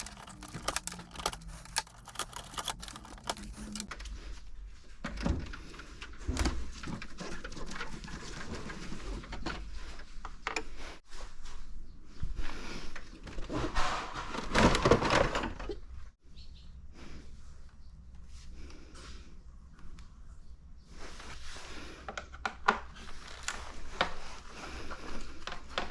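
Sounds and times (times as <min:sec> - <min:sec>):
plastic parts clicking and knocking: 0:00.0 - 0:04.0.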